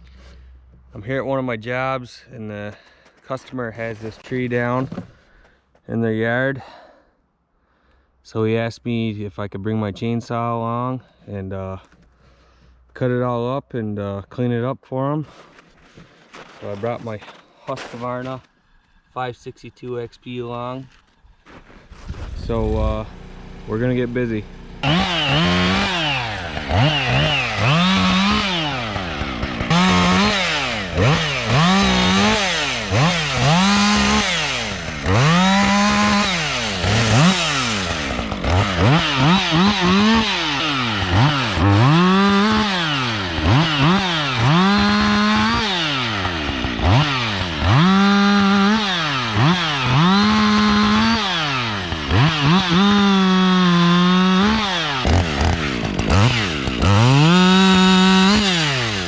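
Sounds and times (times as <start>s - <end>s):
chainsaw revving: 22.5s - 59.0s.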